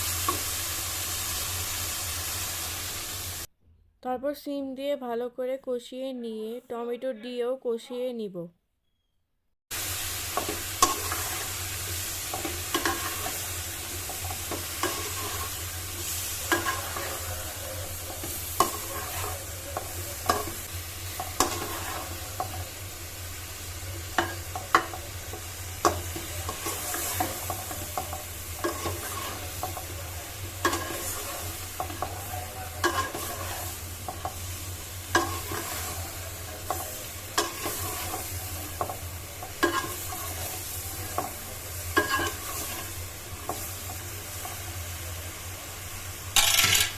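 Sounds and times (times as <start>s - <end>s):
food sizzling in a pan: 0.0s - 3.5s, 9.7s - 46.9s
spatula scraping a pan: 10.2s - 22.7s, 24.0s - 44.7s.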